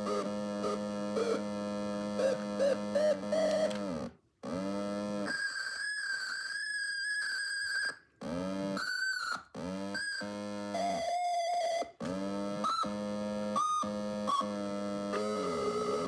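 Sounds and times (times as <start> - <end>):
electronic theremin tones gliding: 0.0 - 3.9, 12.6 - 16.0.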